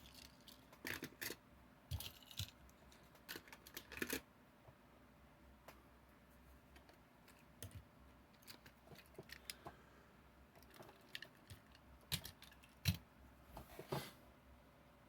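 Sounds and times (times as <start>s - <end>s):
toy trucks and cases clicking: 0.0s - 4.2s, 10.6s - 13.0s.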